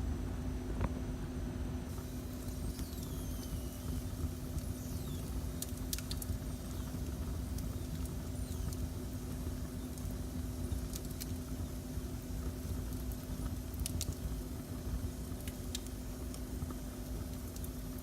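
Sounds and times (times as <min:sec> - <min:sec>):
wood fire crackling: 0:01.9 - 0:18.0
thin whistles falling in pitch: 0:02.6 - 0:05.4.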